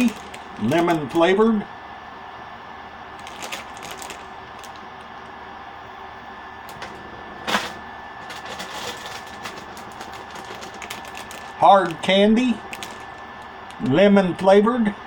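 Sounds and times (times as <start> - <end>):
plastic candy bag crinkling: 0.0 - 1.4, 3.2 - 5.3, 8.2 - 13.9.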